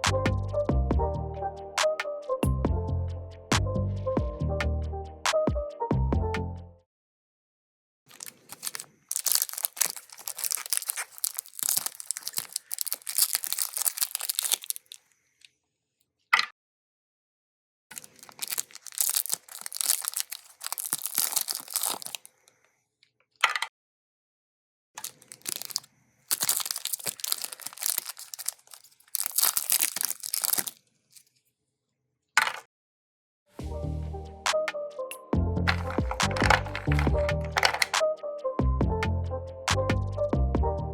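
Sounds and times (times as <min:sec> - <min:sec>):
plastic wrappers crinkling and tearing: 0:08.1 - 0:15.0, 0:17.9 - 0:22.3, 0:25.0 - 0:31.3, 0:35.7 - 0:38.0.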